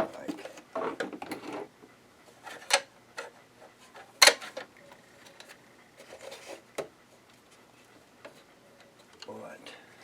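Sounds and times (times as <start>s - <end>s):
soft rubbing and scraping: 5.1s - 8.6s.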